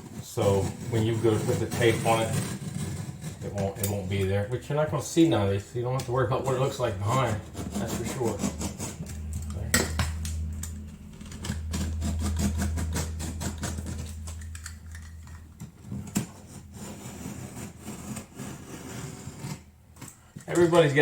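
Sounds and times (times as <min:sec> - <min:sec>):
blade scraping drywall paper: 0:00.0 - 0:09.4, 0:15.8 - 0:21.0
low steady hum: 0:00.0 - 0:21.0.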